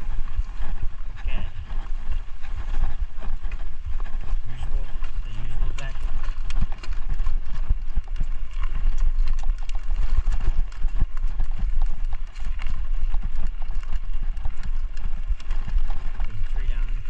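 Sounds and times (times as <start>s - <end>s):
bike rattling over rough ground: 0.0s - 17.0s.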